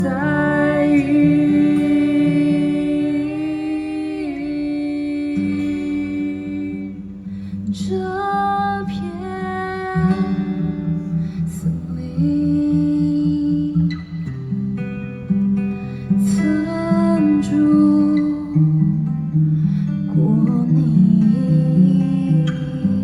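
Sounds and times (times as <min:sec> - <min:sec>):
person singing wordless notes: 0:00.0 - 0:07.2
guitar: 0:00.0 - 0:23.0.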